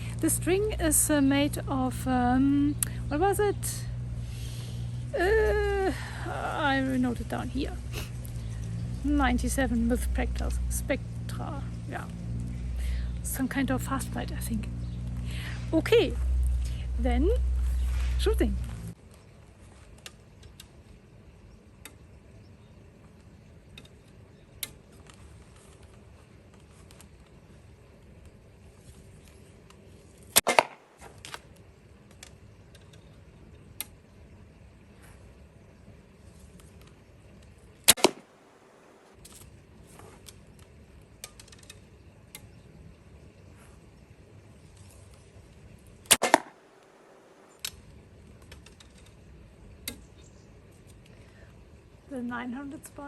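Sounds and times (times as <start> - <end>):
low steady background noise: 0.0 - 53.0
bowstring crack: 30.3 - 31.6, 46.1 - 47.0.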